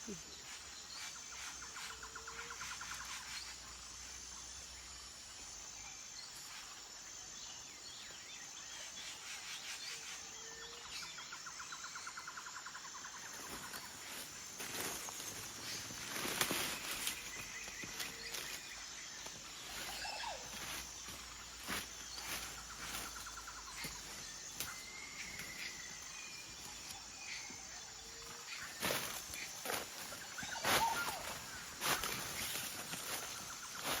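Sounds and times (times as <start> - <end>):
insect chirring: 8.3 - 34.0
bird calls: 13.0 - 34.0
crackles and rustles: 13.3 - 25.6, 28.6 - 34.0.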